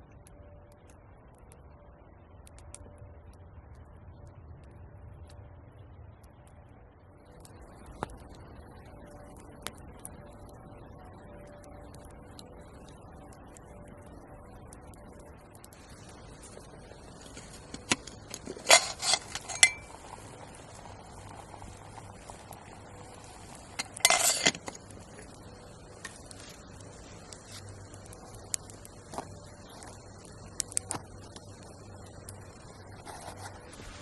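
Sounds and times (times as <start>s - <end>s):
metal cookware clinking: 18.6s - 20.0s, 23.8s - 24.7s.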